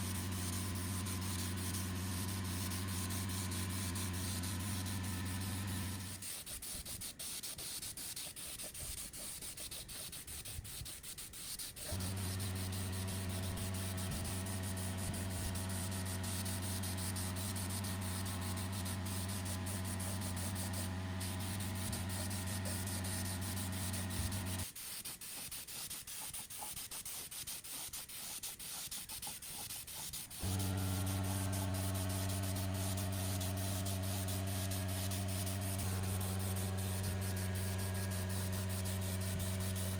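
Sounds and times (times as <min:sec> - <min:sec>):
power tool motor humming: 0:00.0 - 0:07.0, 0:11.8 - 0:24.7, 0:29.8 - 0:39.9
scratchy rubbing: 0:00.0 - 0:39.9.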